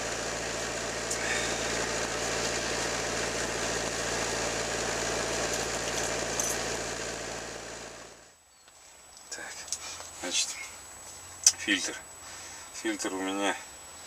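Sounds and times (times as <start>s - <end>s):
diesel engine idling: 0.0s - 8.3s.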